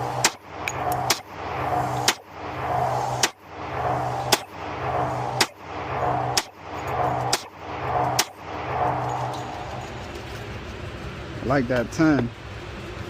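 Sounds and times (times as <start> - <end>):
humming background: 0.0 - 13.0
pistol shots: 0.2 - 0.4, 1.0 - 1.3, 2.0 - 2.3, 4.3 - 4.6, 6.3 - 6.6, 7.2 - 8.4.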